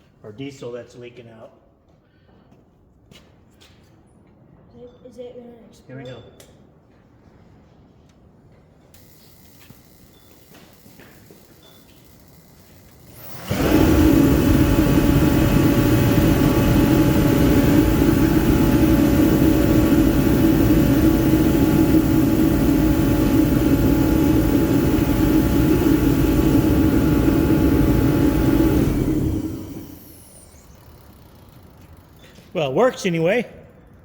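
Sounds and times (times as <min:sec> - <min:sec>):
held tones: 0:09.0 - 0:33.4
forced-air heater rushing: 0:12.7 - 0:33.3.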